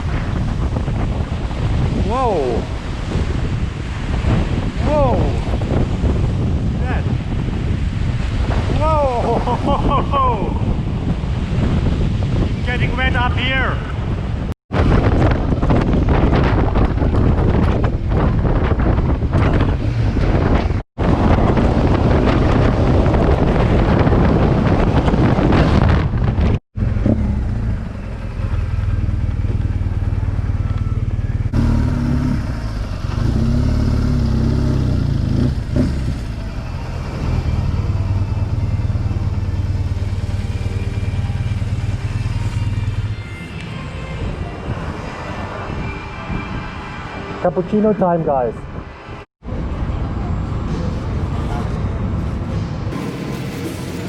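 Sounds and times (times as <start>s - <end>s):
wind buffeting microphone: 0.0s - 43.2s
motorcycle engine running: 26.8s - 43.1s.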